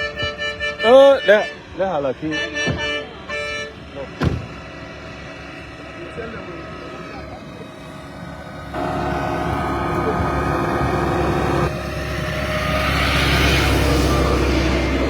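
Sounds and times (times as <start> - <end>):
vehicle engine hum: 0.0 - 15.0
vehicle passing: 3.0 - 15.0.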